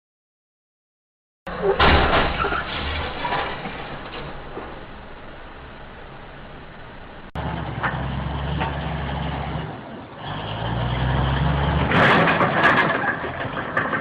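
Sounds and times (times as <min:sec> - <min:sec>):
rough noise with sharp knocks: 0:01.5 - 0:08.9
vehicle engine and road noise: 0:01.5 - 0:14.0.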